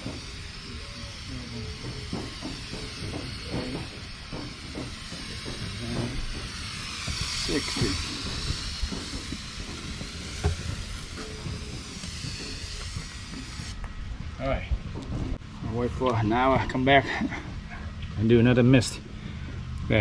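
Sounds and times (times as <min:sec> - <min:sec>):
hose nozzle spraying water mist: 0:00.0 - 0:13.8.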